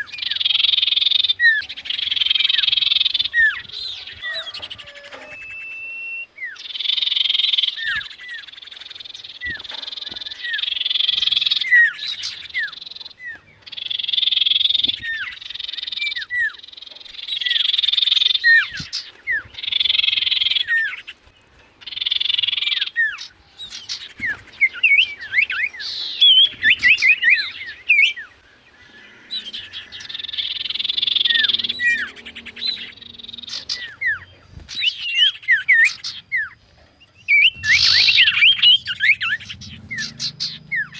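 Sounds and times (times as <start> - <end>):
bird whistles: 0.0 - 8.5, 29.4 - 40.9
bird singing buzzy trills: 0.0 - 40.9
bird quick chirps: 29.3 - 40.9.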